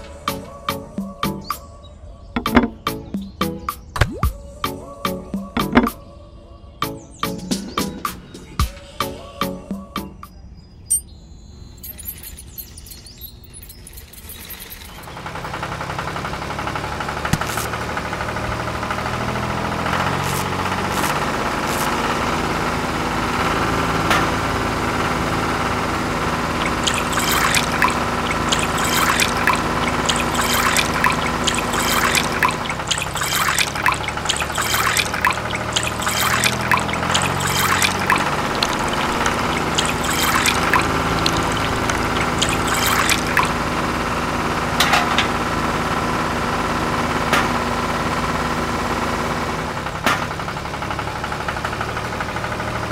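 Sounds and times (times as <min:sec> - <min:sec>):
juice trickling: 0:18.8 - 0:22.2, 0:26.3 - 0:43.8.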